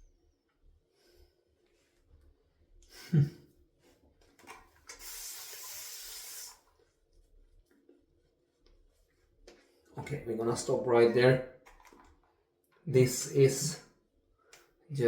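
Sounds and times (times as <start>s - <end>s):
running water hissing: 4.9s - 6.8s, 13.0s - 13.8s.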